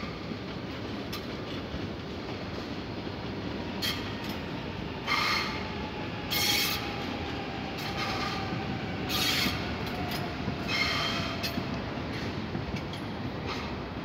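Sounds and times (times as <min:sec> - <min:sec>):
train rolling noise: 0:00.0 - 0:14.0
train wheel squeal: 0:03.8 - 0:13.8.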